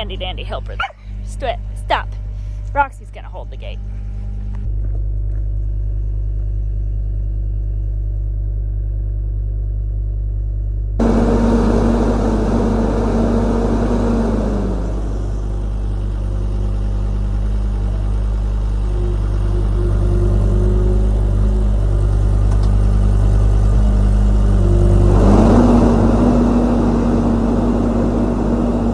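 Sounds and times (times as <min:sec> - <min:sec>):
vehicle engine idling: 0:00.0 - 0:06.4, 0:11.0 - 0:28.9
mechanical whir with rushing noise: 0:11.0 - 0:28.9.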